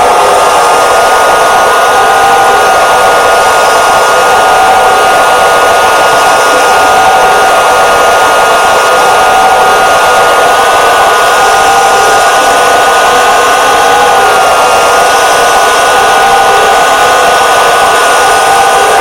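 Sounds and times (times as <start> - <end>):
small electric motors whining: 0.0 - 19.0.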